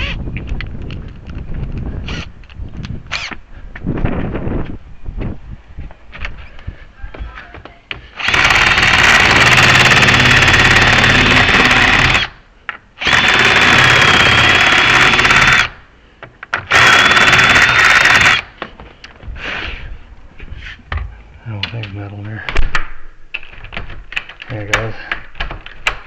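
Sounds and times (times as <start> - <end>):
power tool whining: 8.2 - 12.4, 13.0 - 15.8, 16.7 - 18.5.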